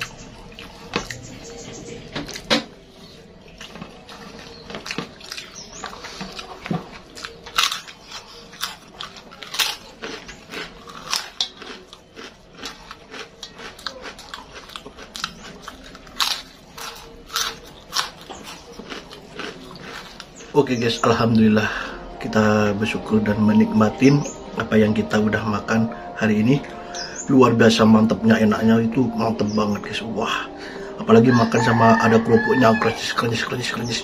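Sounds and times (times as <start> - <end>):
person chewing: 0.0 - 25.7
crunching crispy crackers: 2.2 - 21.8.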